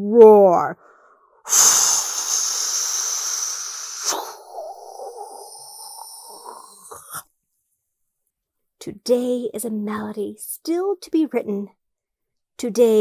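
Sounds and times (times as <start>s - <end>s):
person hissing with mouth: 1.5s - 7.2s.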